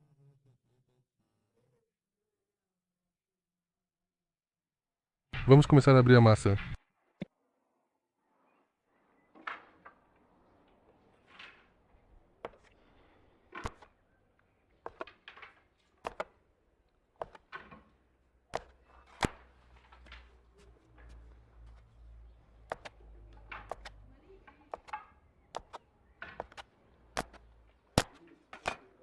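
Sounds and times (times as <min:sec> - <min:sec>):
wooden knocks and clicks: 0:14.8 - 0:16.4, 0:17.2 - 0:28.9.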